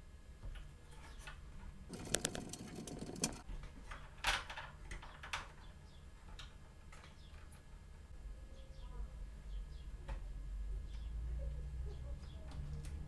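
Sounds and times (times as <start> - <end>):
computer parts clicking and rattling: 1.9 - 3.4.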